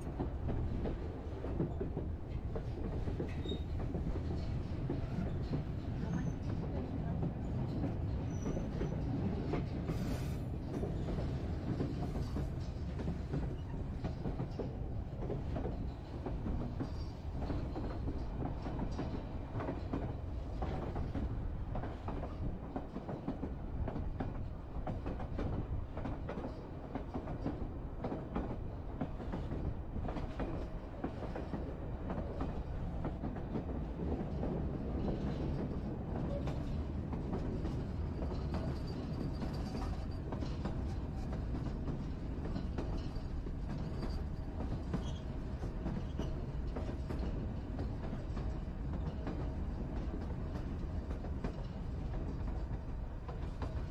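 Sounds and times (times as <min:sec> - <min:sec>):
train cars rumbling: 0:00.0 - 0:53.9
wheels clattering on rails: 0:00.0 - 0:53.9.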